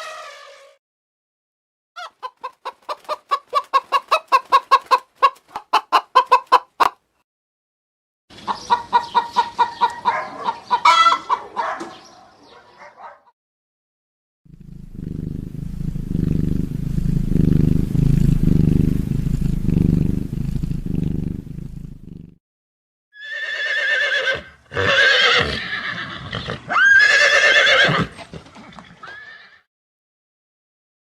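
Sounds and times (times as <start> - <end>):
low pulsing rumble: 14.5 - 22.1
horse whinnying: 23.2 - 29.7.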